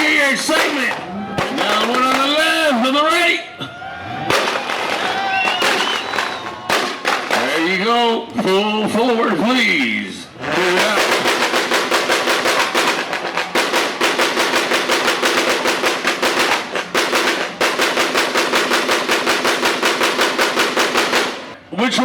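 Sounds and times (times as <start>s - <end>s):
exhaust crackling pops: 4.3s - 8.0s.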